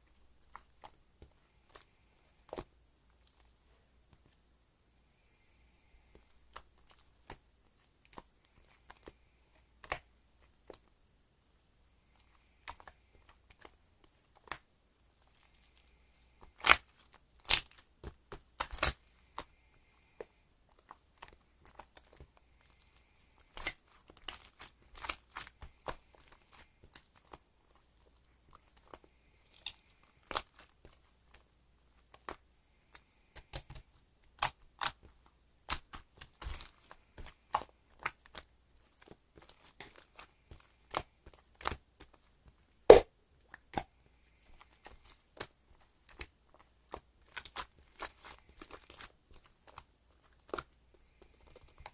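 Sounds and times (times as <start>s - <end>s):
crinkling: 0.0s - 4.4s, 5.2s - 42.7s, 43.4s - 51.9s.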